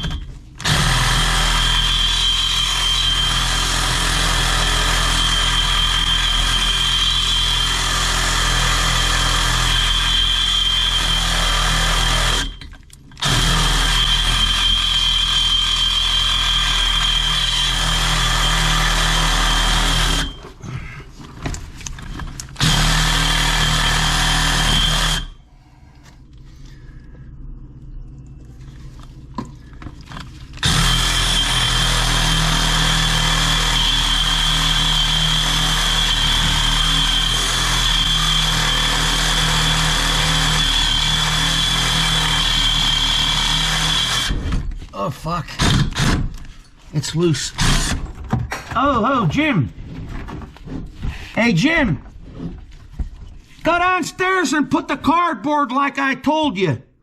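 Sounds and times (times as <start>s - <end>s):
power tool whining: 0.0s - 20.6s, 22.4s - 25.4s, 30.1s - 44.6s.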